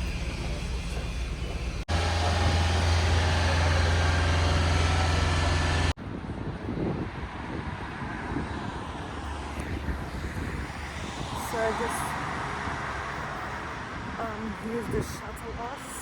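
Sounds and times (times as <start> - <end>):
loud low engine drone: 0.0 - 14.3
passing traffic: 0.0 - 16.0.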